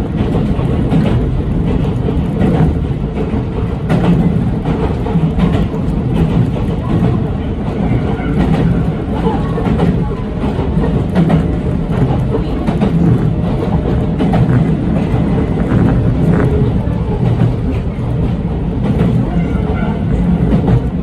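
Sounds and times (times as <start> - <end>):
clicks of wheels on rail joints: 0.0 - 21.0
train wheels rumbling on rail: 0.0 - 21.0.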